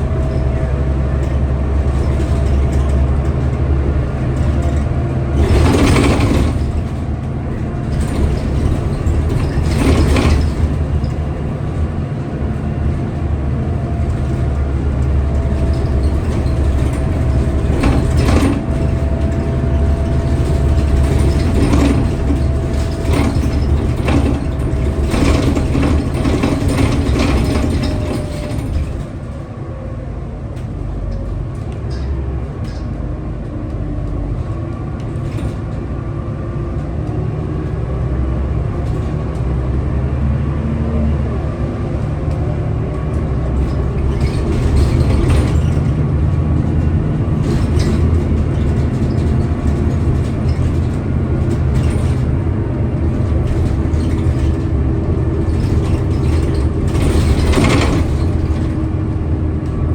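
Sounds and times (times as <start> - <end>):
bus engine rumble: 0.0 - 59.9
clicks and rattles: 0.4 - 12.2, 13.8 - 29.4, 43.1 - 59.0.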